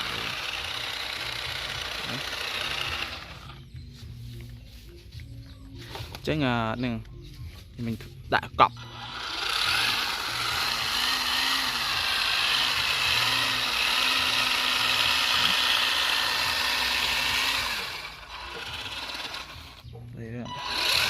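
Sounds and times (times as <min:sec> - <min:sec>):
rc car motor whine and rattle: 0:00.0 - 0:03.7, 0:08.8 - 0:19.9, 0:20.5 - 0:21.0.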